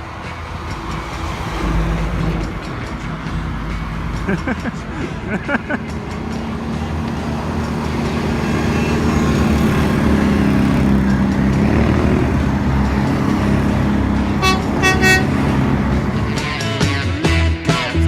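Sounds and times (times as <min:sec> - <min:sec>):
truck engine droning: 0:00.0 - 0:17.8
horn toots: 0:06.1 - 0:16.9.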